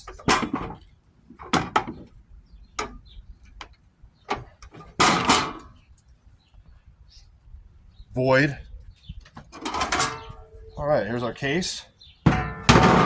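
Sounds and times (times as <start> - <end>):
parts clattering: 4.3 - 5.8, 9.5 - 10.7, 12.3 - 13.0.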